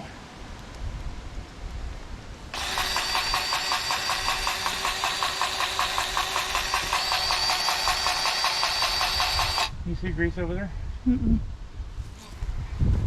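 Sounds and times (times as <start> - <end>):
grease gun motor whining: 2.5 - 9.8.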